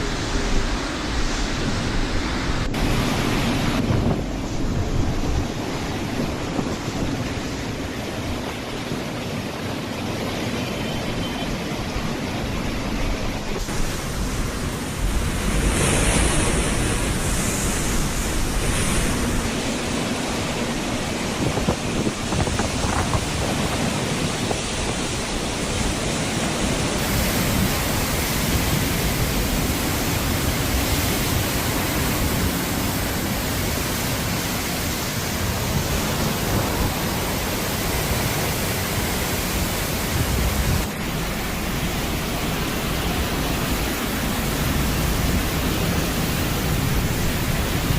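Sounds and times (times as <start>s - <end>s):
rain: 0.0s - 47.9s
wind: 0.0s - 47.9s.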